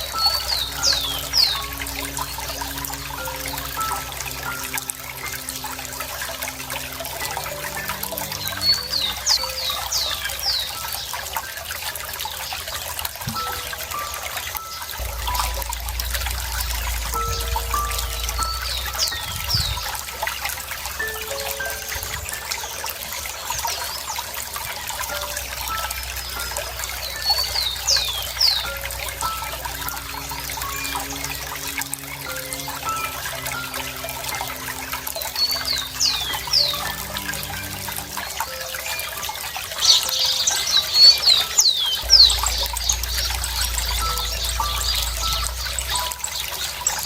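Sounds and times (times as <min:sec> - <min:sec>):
birds chirping: 0:00.0 - 0:47.0
songbirds whistling: 0:00.0 - 0:47.0
water trickling and splashing: 0:00.0 - 0:47.0
low hum: 0:13.3 - 0:22.2, 0:42.0 - 0:47.0.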